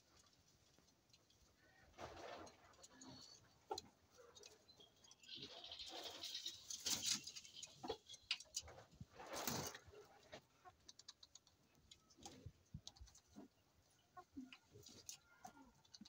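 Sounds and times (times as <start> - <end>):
poultry rustling: 0.0 - 16.0
poultry tapping and clicking: 10.6 - 13.6, 14.2 - 16.0.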